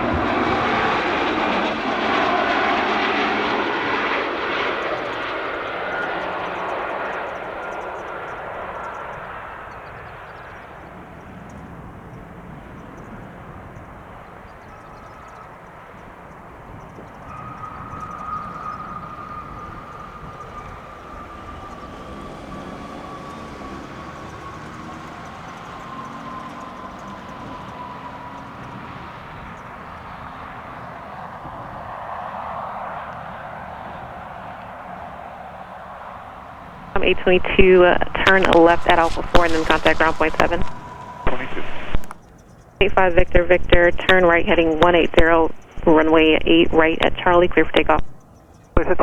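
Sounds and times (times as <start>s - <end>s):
jet engines whining: 0.0s - 49.0s
engine noise rushing: 12.3s - 48.2s.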